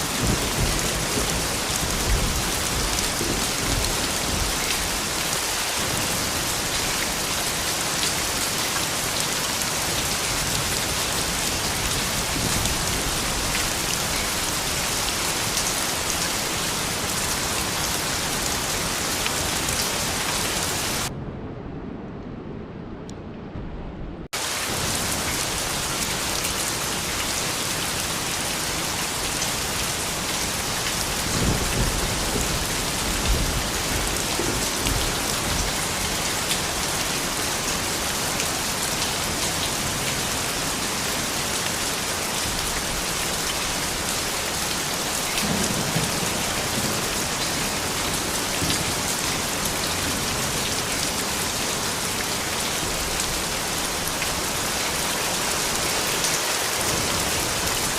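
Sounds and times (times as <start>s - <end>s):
steady rain: 0.0s - 21.1s, 24.3s - 57.9s
low rumbles: 21.0s - 24.3s.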